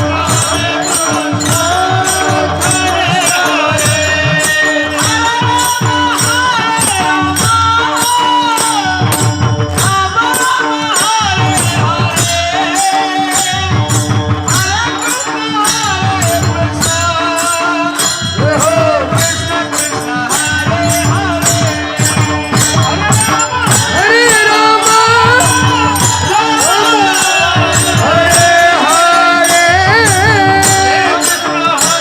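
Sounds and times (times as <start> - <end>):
metallic percussion beat: 0.0 - 32.0
person singing ornamented melody: 14.8 - 32.0.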